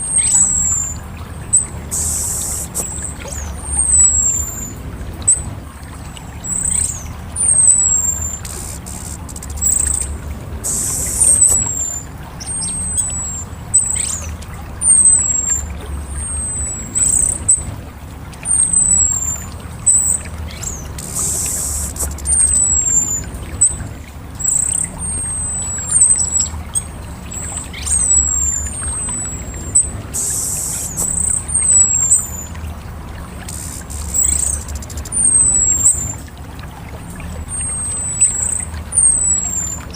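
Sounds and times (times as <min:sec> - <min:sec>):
thrush high down-slurred calls: 0:00.0 - 0:17.6, 0:18.5 - 0:26.6, 0:27.3 - 0:36.2
low steady rumble: 0:00.0 - 0:39.9
brief hissing bursts: 0:10.6 - 0:11.5, 0:33.5 - 0:35.0.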